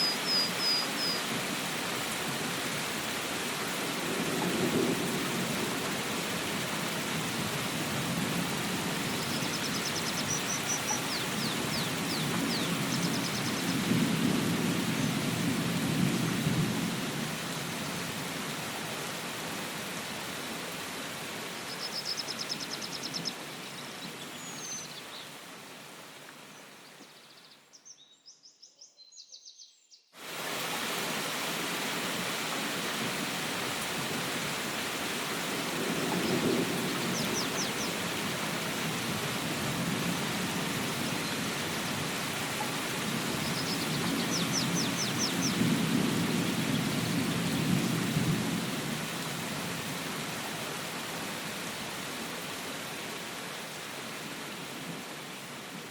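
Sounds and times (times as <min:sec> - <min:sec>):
steady rain: 0:00.0 - 0:27.2, 0:30.2 - 0:55.9
distant thunder rumbling: 0:03.9 - 0:06.1, 0:35.5 - 0:49.1.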